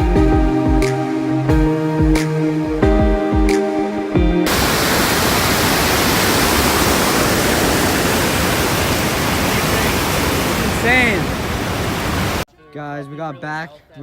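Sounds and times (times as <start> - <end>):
background music: 0.0 - 4.5
waterfall rushing: 4.5 - 12.5.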